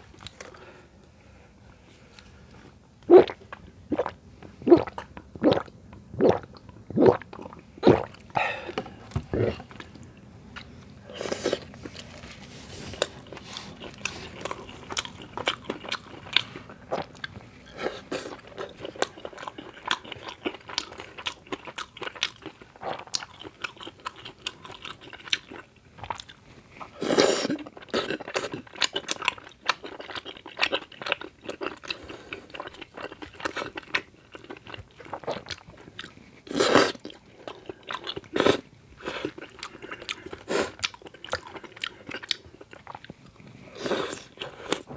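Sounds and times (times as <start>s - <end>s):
close chewing and crunching: 6.2s - 44.9s.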